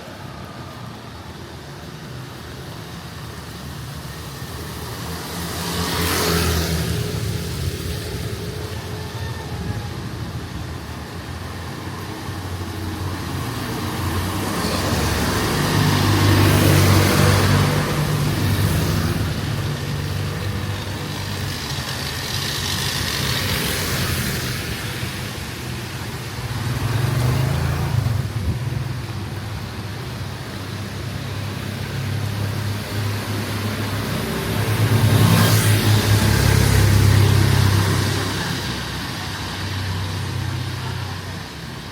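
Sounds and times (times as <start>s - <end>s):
vehicle engine humming: 0.0s - 41.9s.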